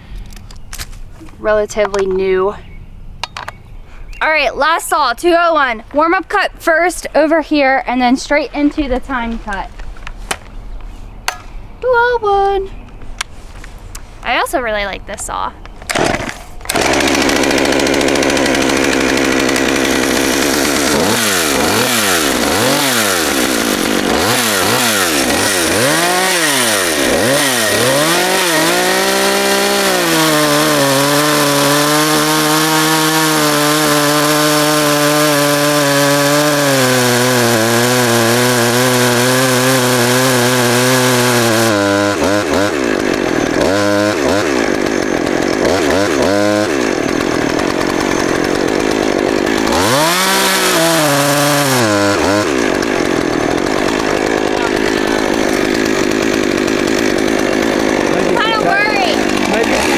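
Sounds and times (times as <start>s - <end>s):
chainsaw cutting wood: 15.8s - 59.9s
chainsaw revving: 15.9s - 59.9s.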